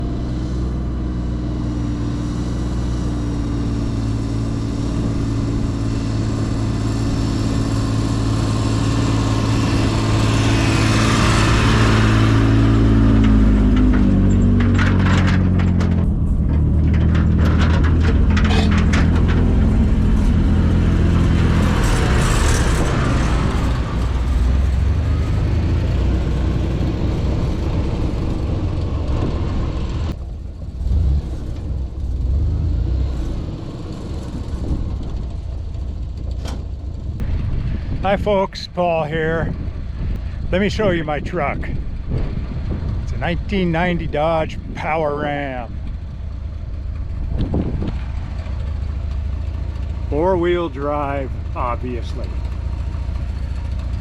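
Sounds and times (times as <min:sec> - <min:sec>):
pickup truck engine running: 0:00.0 - 0:54.0
clicks and knocks: 0:13.1 - 0:20.4.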